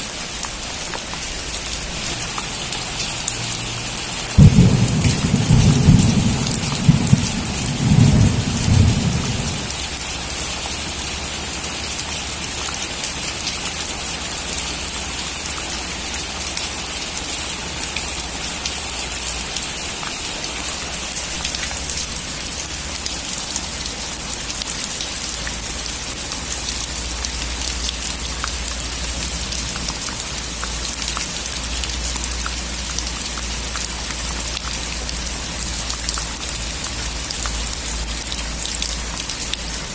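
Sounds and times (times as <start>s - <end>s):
heavy rain on a metal roof: 0.0s - 39.9s
thunder rumbling: 4.2s - 9.8s.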